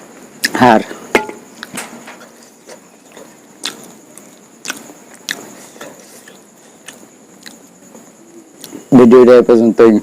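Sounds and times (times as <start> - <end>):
mouth smacking while eating: 2.7 - 7.6.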